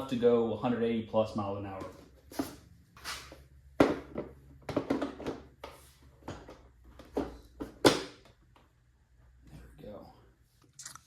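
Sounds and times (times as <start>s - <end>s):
plastic parts knocking and clicking: 3.8s - 5.5s.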